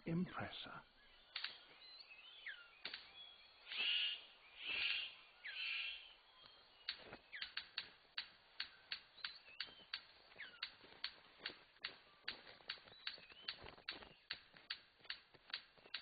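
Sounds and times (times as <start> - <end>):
bird clicks and whistles: 1.3 - 3.1, 3.7 - 16.0
bird harsh rasping calls: 3.6 - 6.1.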